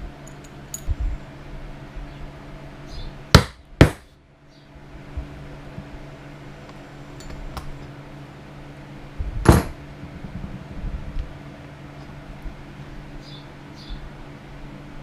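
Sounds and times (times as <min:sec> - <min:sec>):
steady low hum: 0:00.0 - 0:15.0
sharp knock: 0:09.5 - 0:09.8
handling noise: 0:09.5 - 0:10.4.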